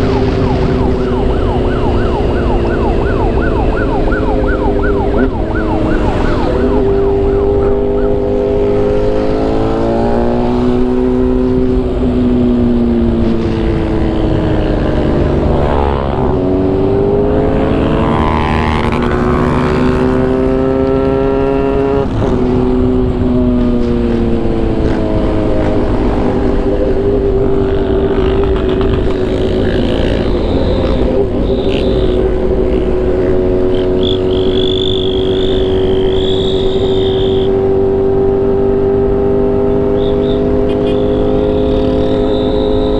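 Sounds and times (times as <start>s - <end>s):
motorcycle engine revving: 0.0s - 42.9s
wind and road noise: 0.0s - 42.9s.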